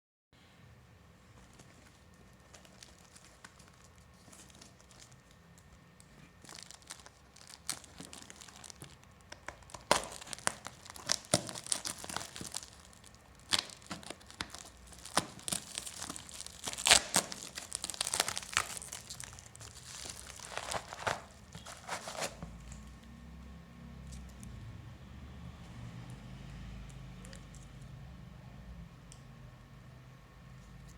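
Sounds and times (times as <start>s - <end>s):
packaging crinkling and tearing: 1.4s - 23.0s.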